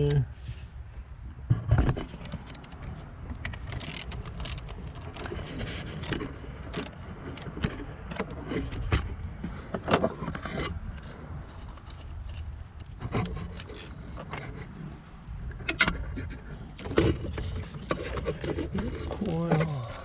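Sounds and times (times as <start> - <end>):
socket wrench clicking: 3.4 - 7.5.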